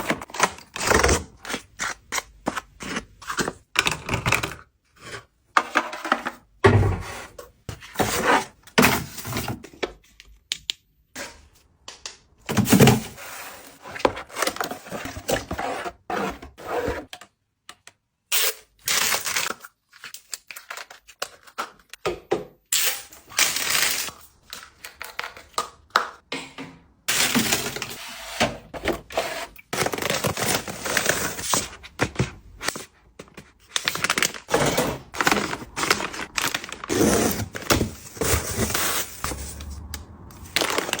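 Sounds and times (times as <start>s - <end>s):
packaging rustling and tearing: 33.6s - 39.7s, 40.4s - 41.0s.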